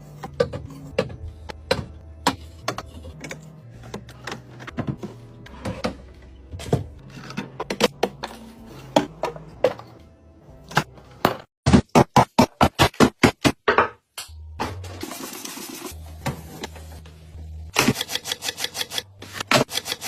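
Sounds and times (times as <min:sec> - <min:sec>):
background music: 0:00.0 - 0:11.5.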